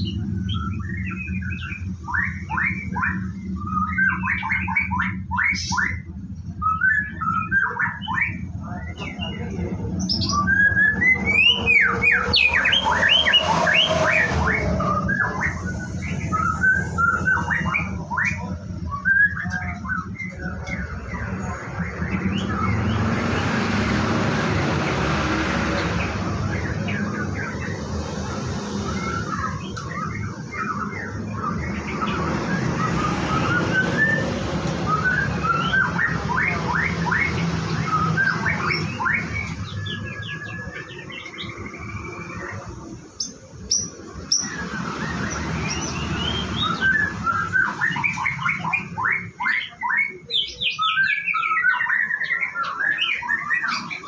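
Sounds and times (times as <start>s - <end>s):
bird chirping and singing: 0.0s - 54.0s
steady rushing noise: 8.4s - 48.6s.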